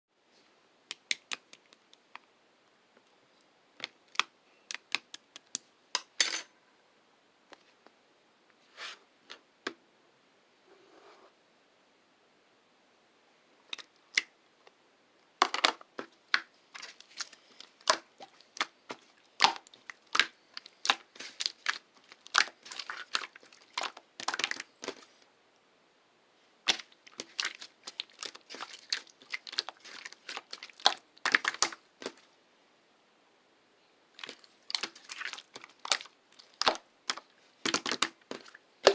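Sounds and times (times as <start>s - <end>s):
wrapping material crumpling: 16.6s - 25.2s, 26.7s - 32.2s, 34.2s - 38.9s.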